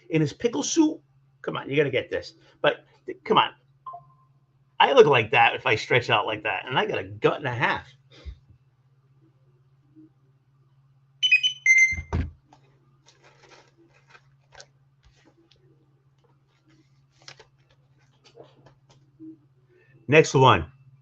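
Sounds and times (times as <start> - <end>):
steady low hum: 0.0 - 21.0
electronic beeping alert: 11.2 - 12.2.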